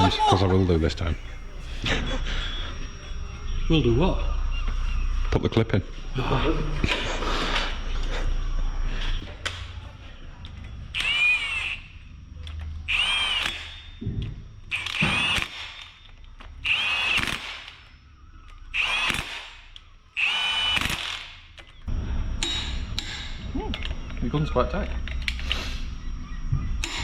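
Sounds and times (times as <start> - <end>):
impact wrench bursts: 10.9 - 12.0, 12.9 - 14.0, 14.7 - 17.9, 18.5 - 21.6.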